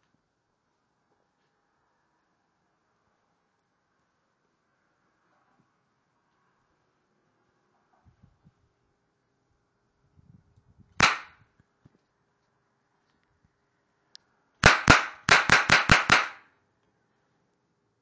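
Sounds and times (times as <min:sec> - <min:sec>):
toy cap gun cracks: 0:11.0 - 0:11.4.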